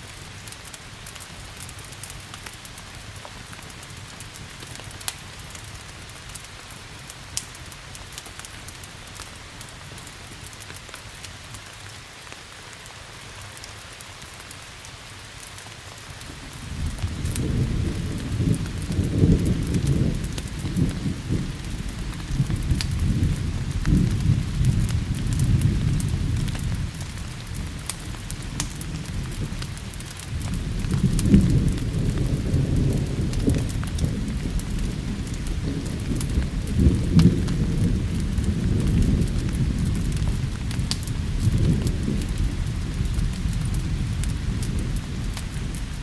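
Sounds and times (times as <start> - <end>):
steady rain: 0.0 - 46.0
rolling thunder: 16.3 - 46.0.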